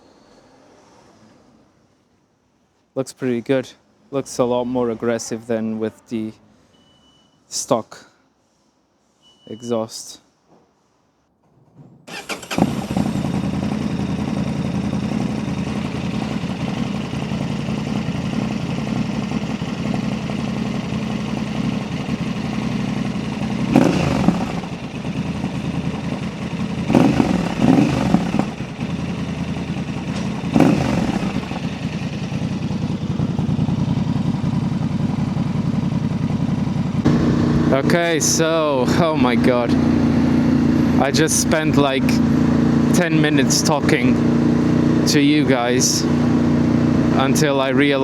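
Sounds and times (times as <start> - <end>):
engine revving blips: 12.1 - 19.3, 20.1 - 33.0, 36.9 - 48.0
motorcycle engine idling: 12.1 - 48.0.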